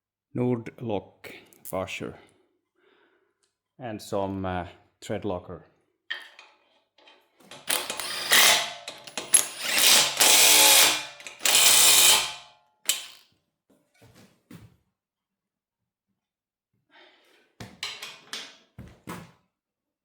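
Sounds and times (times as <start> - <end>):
bolt tightening mechanical rattling: 7.5 - 13.2.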